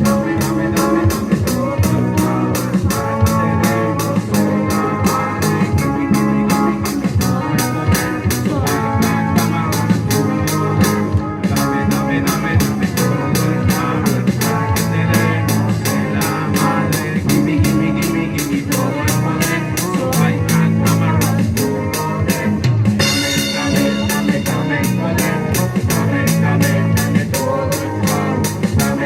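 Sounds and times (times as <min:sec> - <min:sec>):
rock band playing: 0:00.0 - 0:29.0
cymbal beat: 0:22.7 - 0:28.9.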